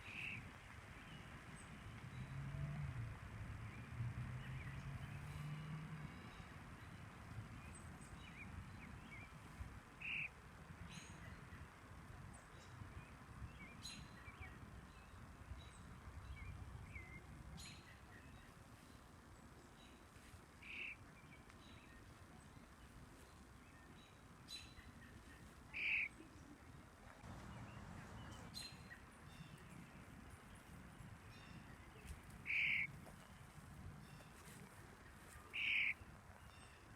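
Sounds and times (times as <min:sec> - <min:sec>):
high bird chirps: 0:10.0 - 0:10.3, 0:25.8 - 0:26.1, 0:31.5 - 0:32.9, 0:35.5 - 0:36.0.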